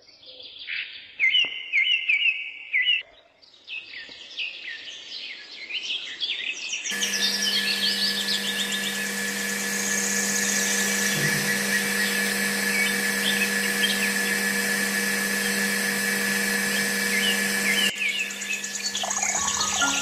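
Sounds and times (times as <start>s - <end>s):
birds chirping: 6.8s - 20.0s
small electric motor whine: 6.9s - 20.0s.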